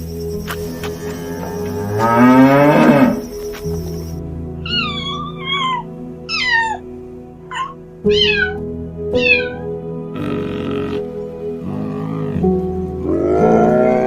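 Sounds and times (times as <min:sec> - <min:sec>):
background music: 0:00.0 - 0:14.0
cat meowing: 0:04.6 - 0:06.9, 0:07.5 - 0:08.6, 0:09.2 - 0:09.7.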